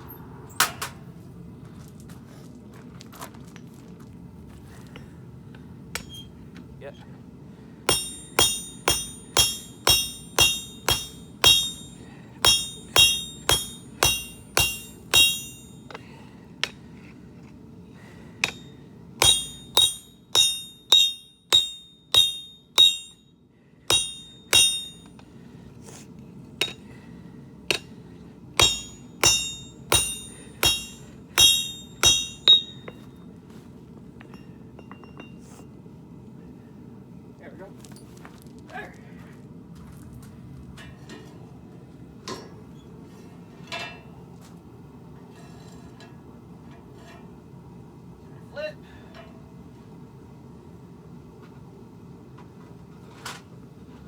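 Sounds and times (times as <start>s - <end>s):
steady low hum: 3.9s - 38.0s
hammer striking steel on anvil: 7.9s - 16.0s, 18.4s - 23.2s, 23.9s - 25.2s, 26.6s - 26.9s, 27.7s - 28.0s, 28.6s - 33.1s.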